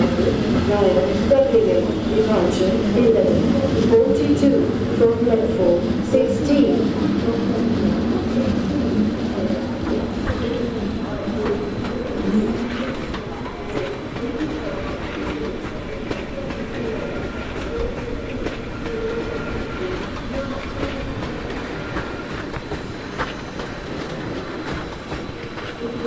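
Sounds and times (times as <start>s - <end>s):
train wheels rumbling on track: 0.0s - 26.0s
faint squeal tones: 8.2s - 26.0s.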